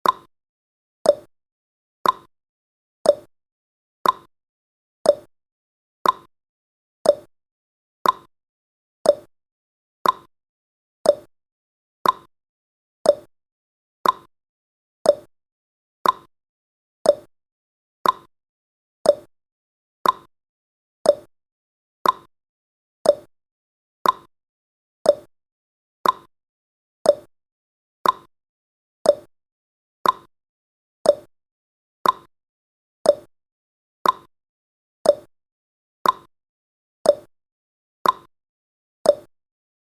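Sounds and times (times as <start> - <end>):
clock ticking: 2.0 - 2.3, 4.0 - 4.3, 6.0 - 6.3, 8.0 - 8.3, 10.0 - 10.3, 12.0 - 12.3, 14.0 - 14.3, 18.0 - 18.3, 20.0 - 20.3, 22.0 - 22.3, 24.0 - 24.3, 26.0 - 26.3, 28.0 - 28.3, 29.1 - 29.3, 30.0 - 30.3, 31.1 - 31.3, 32.0 - 32.3, 33.1 - 33.3, 34.0 - 34.3, 35.1 - 35.3, 36.0 - 36.3, 38.0 - 38.3, 39.1 - 39.3.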